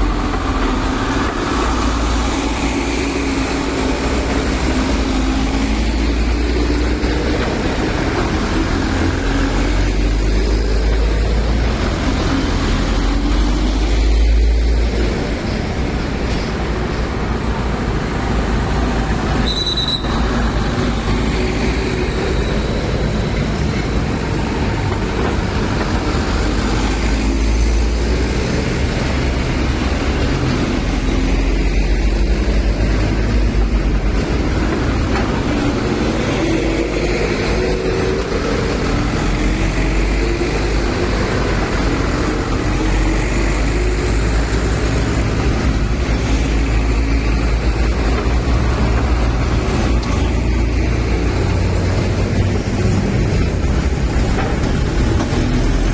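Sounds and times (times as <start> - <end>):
diesel truck engines rumbling: 0.0 - 55.9
short high squeal: 19.4 - 20.2.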